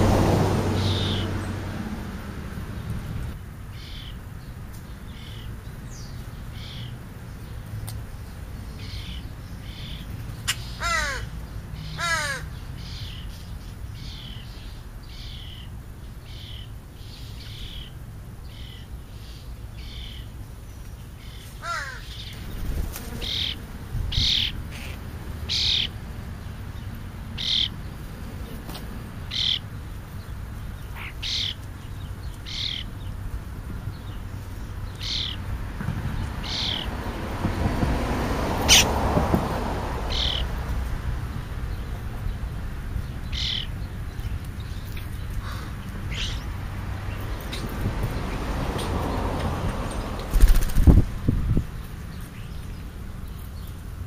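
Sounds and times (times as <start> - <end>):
birds chirping: 0.0 - 1.8, 2.5 - 37.6, 38.4 - 39.2, 40.0 - 40.6, 41.2 - 51.0
falling bird calls: 8.6 - 26.0, 27.4 - 33.2, 36.2 - 37.0, 38.6 - 39.0, 40.1 - 40.6, 43.0 - 47.7.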